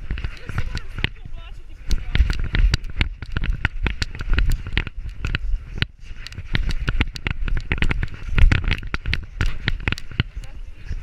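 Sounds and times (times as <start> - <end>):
camera housing rattling: 1.9 - 10.4.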